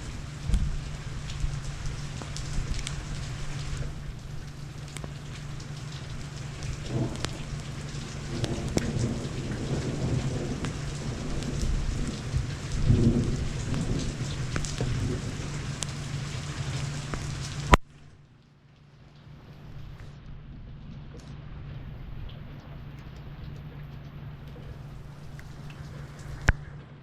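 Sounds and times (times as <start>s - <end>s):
thunder rumbling: 0.0s - 17.8s
heavy rain falling: 0.0s - 18.1s, 19.1s - 27.0s.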